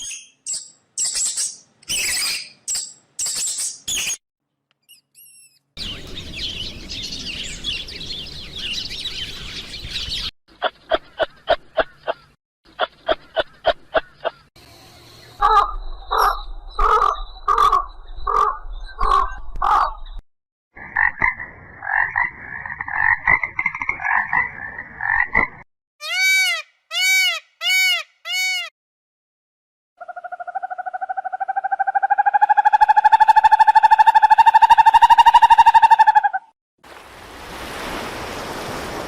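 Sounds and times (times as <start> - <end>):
pulsed animal calls: 30.0 - 36.5.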